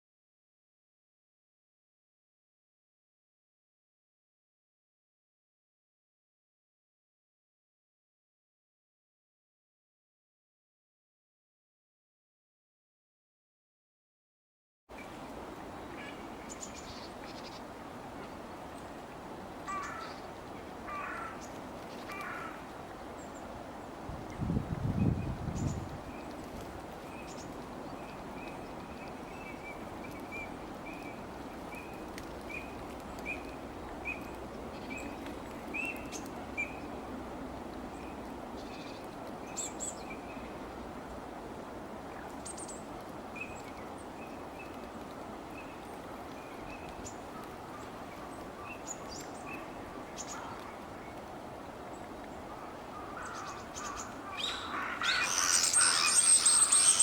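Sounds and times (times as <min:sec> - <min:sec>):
harsh bird calls: 0:53.2 - 0:57.0.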